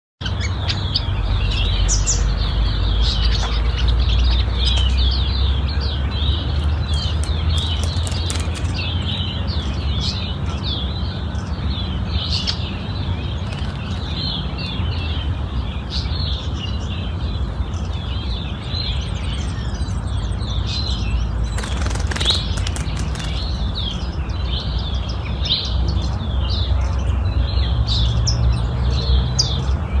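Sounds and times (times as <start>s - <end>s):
birds chirping: 0.2s - 30.0s
steady low rumble: 29.7s - 30.0s.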